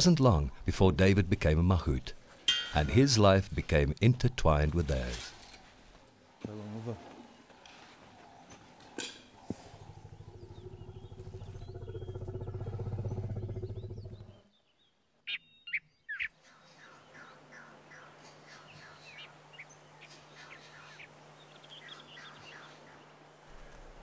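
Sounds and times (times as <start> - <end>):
bird calls: 6.6 - 24.0
low pulsing hum: 9.4 - 14.4.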